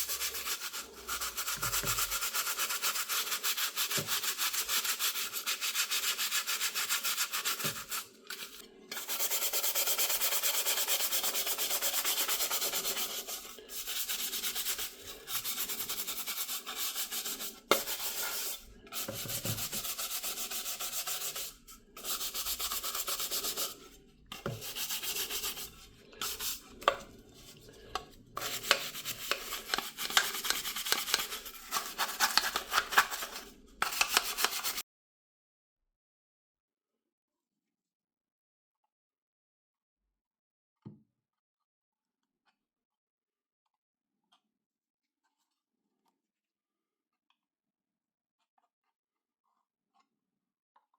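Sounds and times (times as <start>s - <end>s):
sandpaper rubbing: 0.0s - 27.0s, 28.4s - 34.8s.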